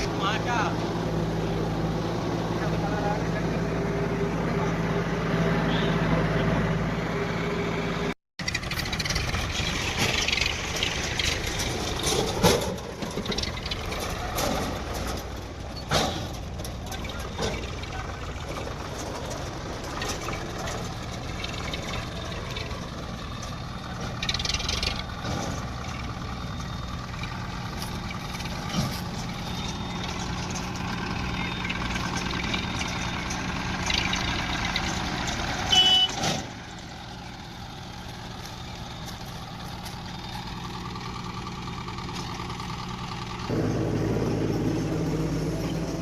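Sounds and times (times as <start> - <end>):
heavy diesel engine running: 0.0 - 46.0
short knocks and clanks: 8.6 - 21.6.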